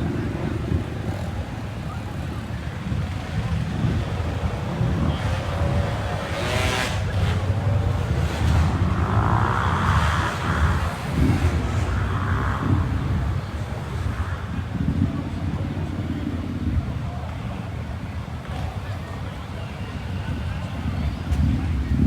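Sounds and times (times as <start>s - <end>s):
motorcycle engines rumbling: 0.0s - 22.0s.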